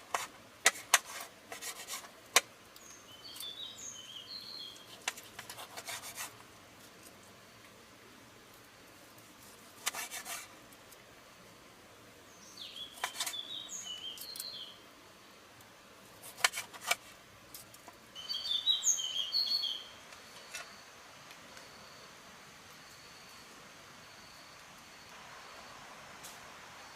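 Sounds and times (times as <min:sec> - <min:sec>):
dry scraping clicks: 0:00.0 - 0:03.5, 0:04.8 - 0:06.4, 0:13.0 - 0:13.4, 0:16.2 - 0:18.0
small bird chirping: 0:02.8 - 0:05.0, 0:12.3 - 0:14.8, 0:18.2 - 0:20.9.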